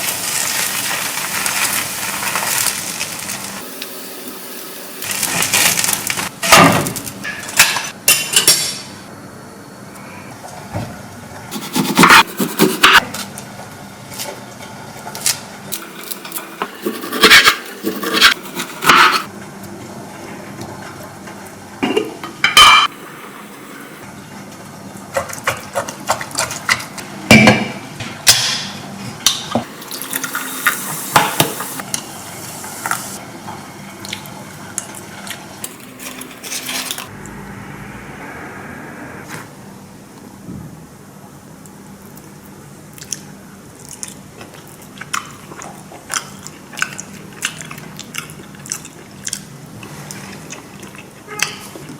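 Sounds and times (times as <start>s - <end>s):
liquid pouring: 29.7s - 31.8s.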